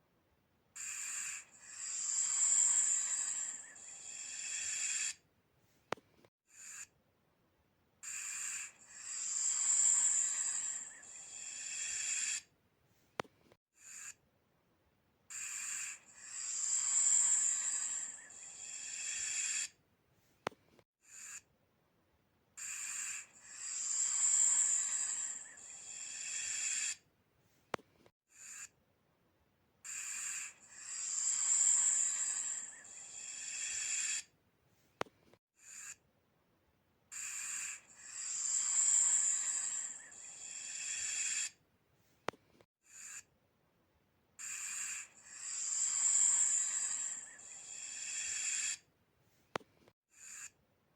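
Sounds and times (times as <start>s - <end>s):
snake hissing: 0.8s - 5.2s, 8.0s - 12.5s, 15.3s - 19.8s, 22.6s - 27.0s, 29.9s - 34.3s, 37.2s - 41.6s, 44.4s - 48.8s.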